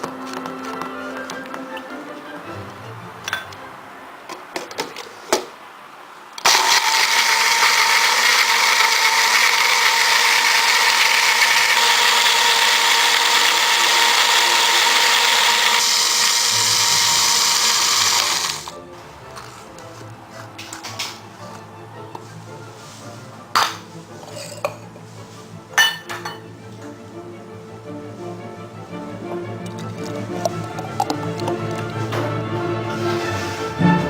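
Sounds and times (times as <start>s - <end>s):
blender running: 6.4s - 18.8s.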